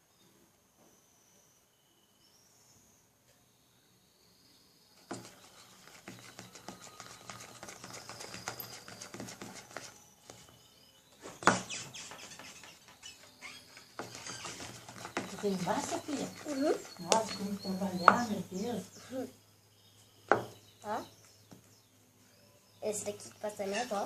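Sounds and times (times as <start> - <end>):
faint bird chirps: 0.0 - 24.0.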